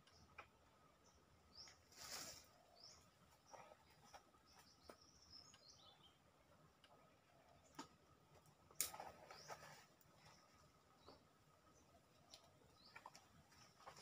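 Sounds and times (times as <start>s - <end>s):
faint bird chirps: 1.0s - 6.2s.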